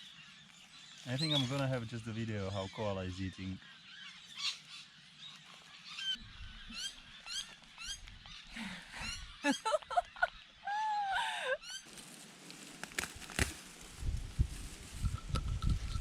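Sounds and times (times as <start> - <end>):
birds chirping: 0.0 - 12.2.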